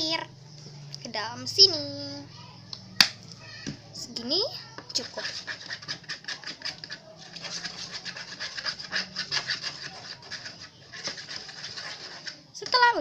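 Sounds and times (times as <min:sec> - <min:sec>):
stirring thick slime: 0:04.6 - 0:13.0.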